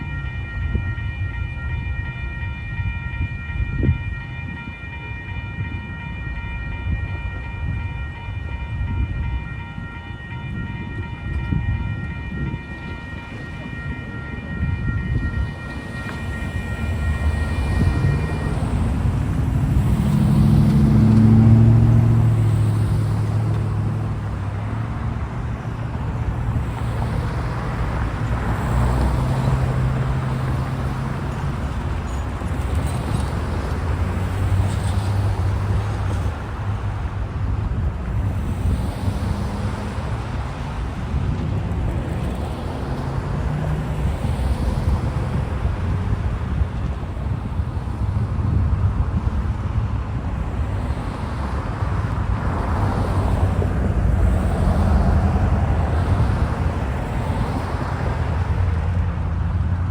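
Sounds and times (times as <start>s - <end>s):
high steady tones: 0.0s - 36.9s
diesel locomotive engine rumbling: 0.0s - 59.9s.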